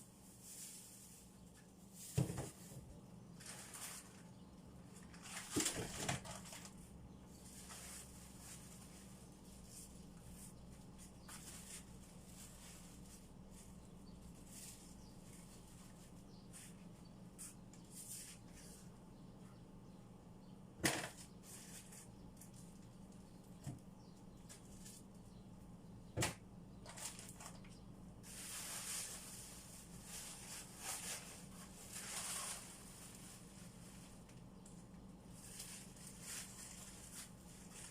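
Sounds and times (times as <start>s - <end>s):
rustling: 0.1s - 19.0s, 26.8s - 37.9s.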